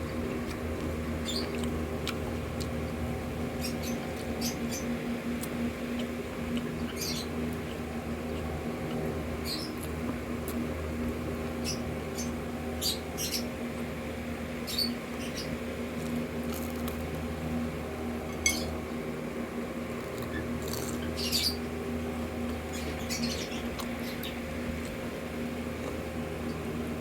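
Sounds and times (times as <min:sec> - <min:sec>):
crunchy chewing: 0:00.0 - 0:11.7, 0:15.3 - 0:17.4, 0:19.8 - 0:21.5, 0:22.4 - 0:26.7
steady low hum: 0:00.0 - 0:27.0.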